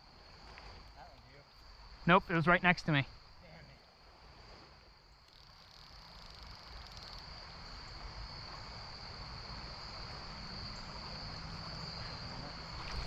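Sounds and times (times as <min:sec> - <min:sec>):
crickets trilling: 0:00.0 - 0:13.0
stream rushing: 0:06.4 - 0:13.0.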